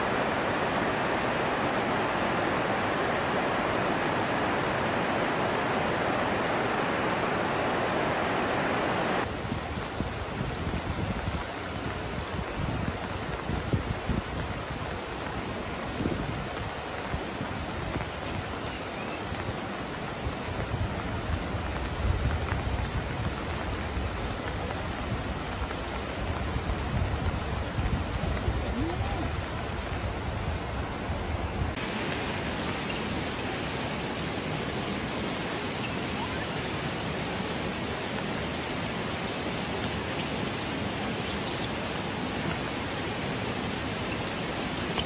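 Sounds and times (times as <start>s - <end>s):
rain falling on water and stone: 0.0s - 45.0s
wind rumble on microphone: 9.0s - 18.6s, 19.2s - 31.8s.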